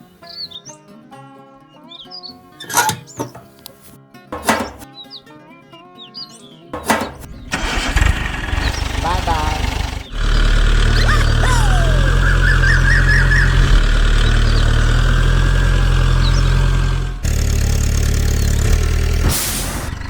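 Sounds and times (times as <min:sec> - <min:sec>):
engine idling: 0:04.4 - 0:04.8, 0:06.8 - 0:20.0.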